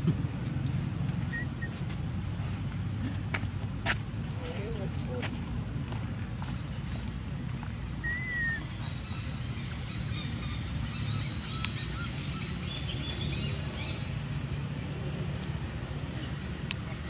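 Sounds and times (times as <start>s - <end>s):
small birds chirping: 0.2s - 17.0s
bird whistle rising and falling: 8.0s - 8.6s.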